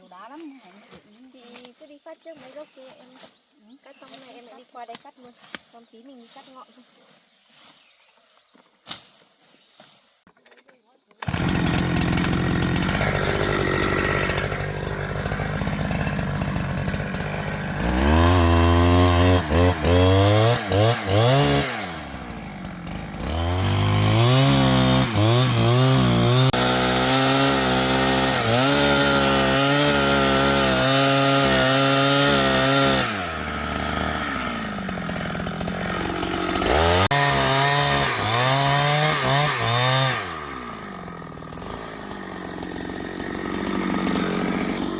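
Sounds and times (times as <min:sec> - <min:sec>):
chainsaw idling and revving: 0:11.2 - 0:44.9.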